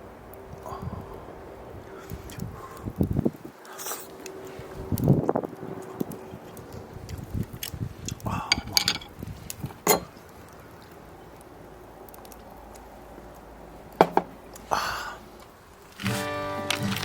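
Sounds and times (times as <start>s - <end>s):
dishes and utensils clinking: 8.5s - 9.1s, 9.8s - 10.1s.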